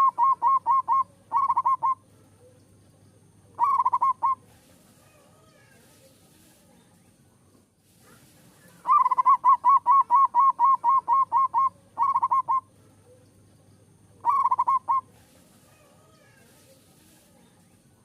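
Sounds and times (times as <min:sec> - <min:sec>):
dove cooing: 0:00.0 - 0:02.7, 0:03.5 - 0:05.8, 0:08.6 - 0:13.2, 0:13.9 - 0:17.3.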